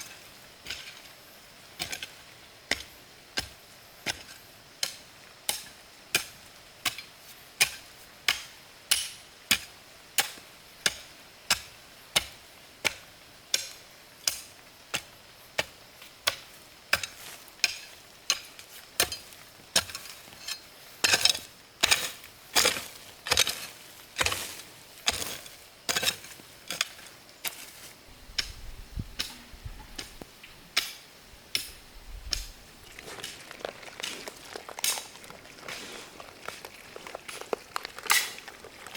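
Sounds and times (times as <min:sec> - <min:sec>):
hand tool chopping: 0:21.1 - 0:27.7.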